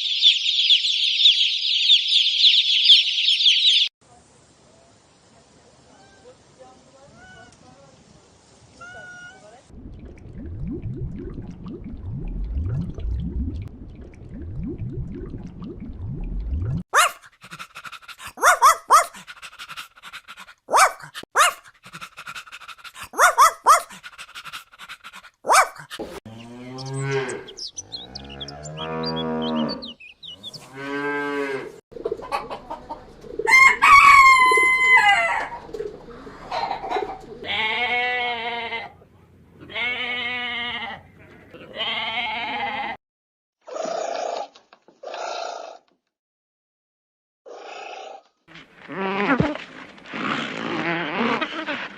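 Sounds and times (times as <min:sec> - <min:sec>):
low rumbling noise: 0:09.7 - 0:16.8
pitched animal calls: 0:17.0 - 0:19.9, 0:20.7 - 0:24.6
cow mooing: 0:26.3 - 0:31.8
hens clucking: 0:32.0 - 0:37.6
rooster crowing: 0:33.5 - 0:35.6.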